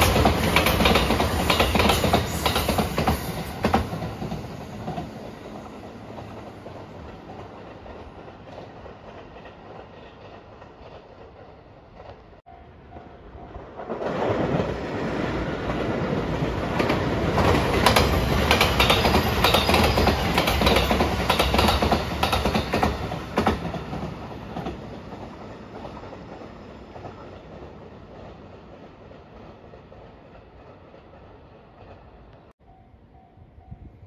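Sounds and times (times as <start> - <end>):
train passing: 0.0 - 34.0
wheels clicking over rail joints: 15.5 - 32.4.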